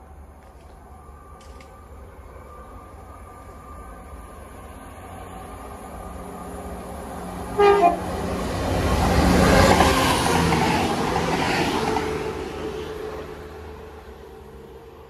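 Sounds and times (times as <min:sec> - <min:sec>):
train passing: 0:00.0 - 0:15.0
train horn blast: 0:07.5 - 0:08.2.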